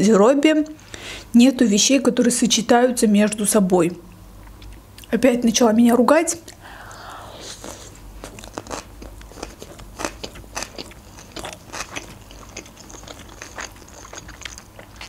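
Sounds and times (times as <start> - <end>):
crunchy chewing of fried food: 7.4 - 15.0.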